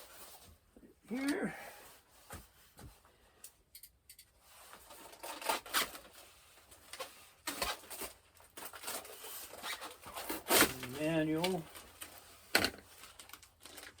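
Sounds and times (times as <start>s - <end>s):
cardboard and plastic packaging rustling: 4.3s - 14.0s.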